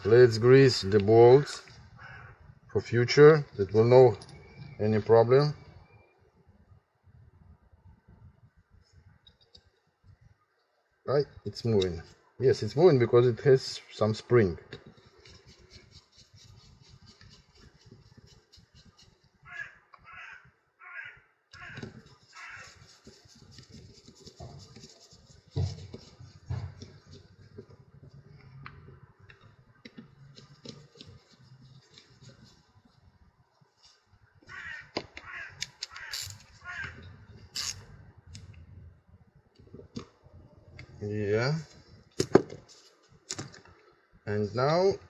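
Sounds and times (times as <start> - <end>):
bird cawing: 2.0 - 2.5, 19.4 - 22.9, 34.4 - 37.2
crackle of hands handling parts: 21.6 - 33.0
clicks of parts being handled: 35.0 - 38.6.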